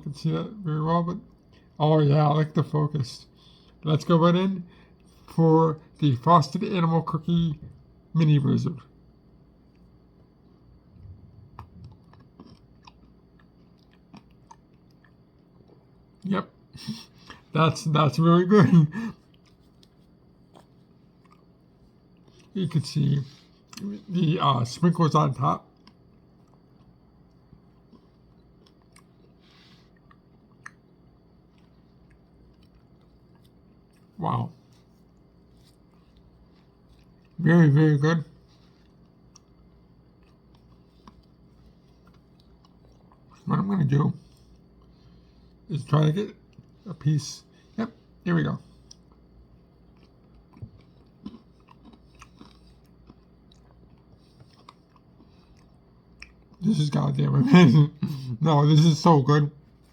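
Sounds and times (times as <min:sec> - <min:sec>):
faint chewing: 0:09.0 - 0:17.6, 0:19.0 - 0:24.2, 0:25.4 - 0:37.4, 0:38.2 - 0:43.5, 0:44.2 - 0:45.7, 0:46.4 - 0:46.8, 0:47.6 - 0:56.7.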